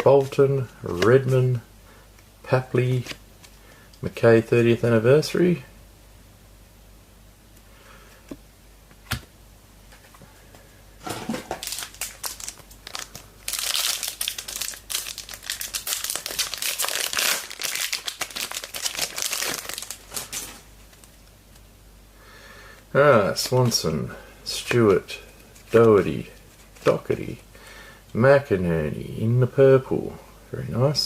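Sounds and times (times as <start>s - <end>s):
wrapper tearing and crinkling: 11.3s - 21.1s.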